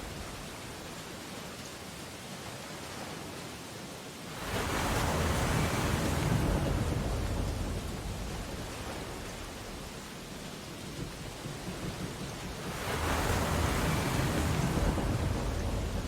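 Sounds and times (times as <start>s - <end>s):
surf washing on beach: 0.0s - 16.0s
wave breaking with rumble: 11.0s - 16.0s.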